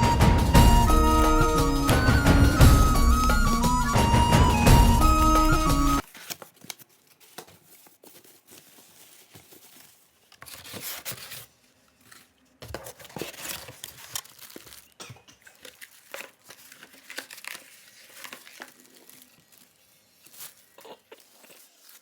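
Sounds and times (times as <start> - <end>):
packaging crinkling and tearing: 6.0 - 22.0.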